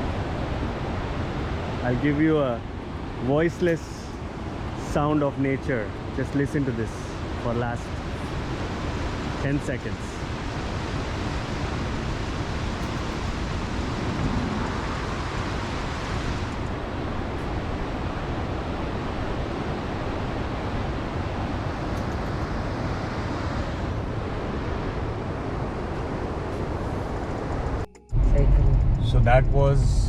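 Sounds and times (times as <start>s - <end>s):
river water rushing: 5.8s - 27.8s.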